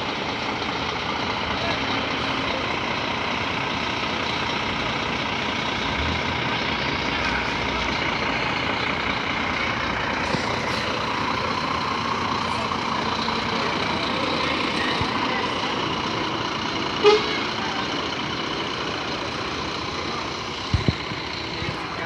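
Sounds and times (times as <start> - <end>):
truck engine and road noise: 0.0 - 22.0.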